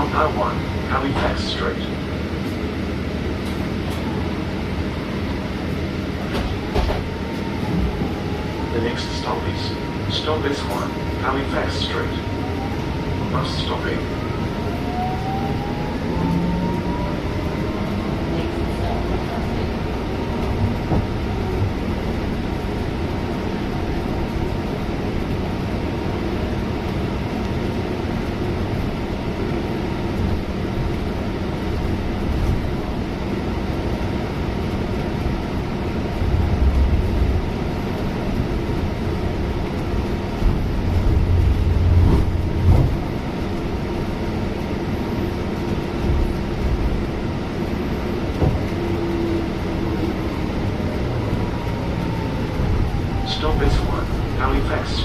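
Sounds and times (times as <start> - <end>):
bus engine and road rumble: 0.0 - 55.0
rising whine: 12.2 - 18.5.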